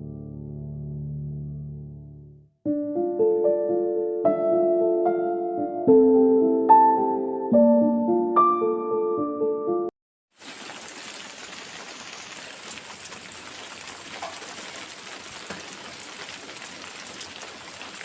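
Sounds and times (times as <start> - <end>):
piano tune: 0.0 - 9.9.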